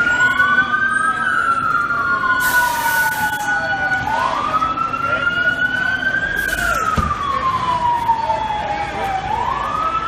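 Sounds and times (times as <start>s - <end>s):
emergency sirens wailing: 0.0s - 10.0s.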